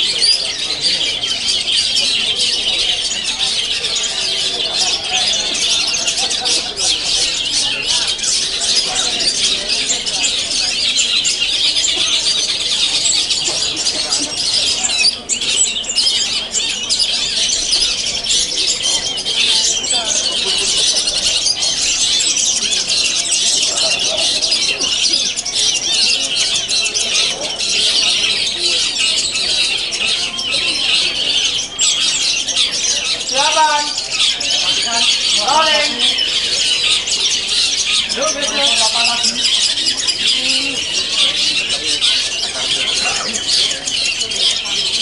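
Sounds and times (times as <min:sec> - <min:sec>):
songbirds chorus: 0:00.0 - 0:45.0.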